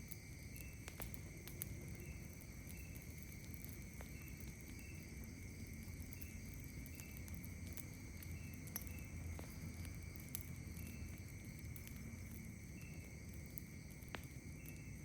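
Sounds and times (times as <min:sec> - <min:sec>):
campfire crackling: 0:00.0 - 0:15.0
night insects droning: 0:00.0 - 0:15.0
short insect chirps: 0:00.0 - 0:15.0.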